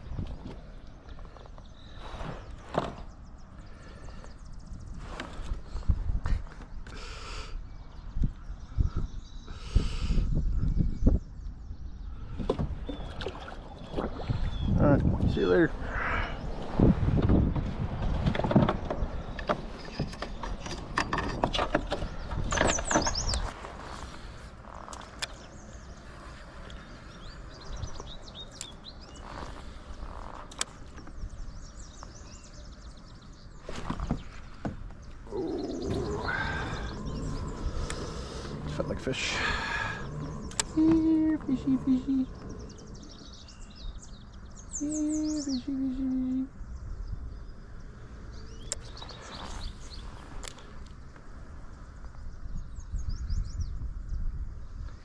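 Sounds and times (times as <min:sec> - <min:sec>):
songbirds chirping: 0:00.0 - 0:55.0
steady low rumble: 0:34.2 - 0:55.0
sharp clicks: 0:40.4 - 0:40.8.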